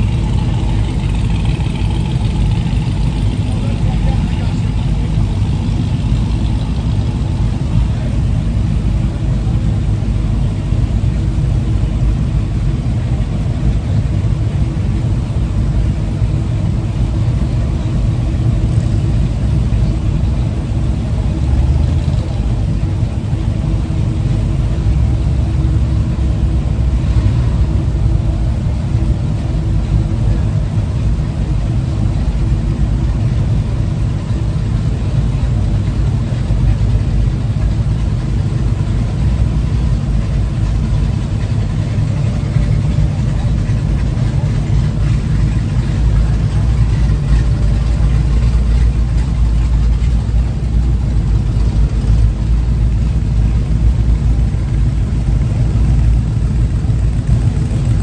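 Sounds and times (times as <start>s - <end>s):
vehicle engine running at low revs: 0.0s - 58.0s.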